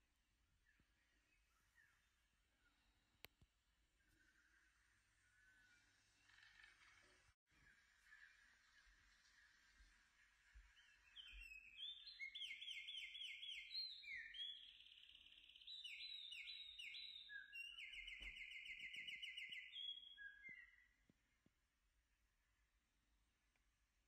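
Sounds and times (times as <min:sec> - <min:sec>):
faint songbird singing: 0:00.0 - 0:24.0.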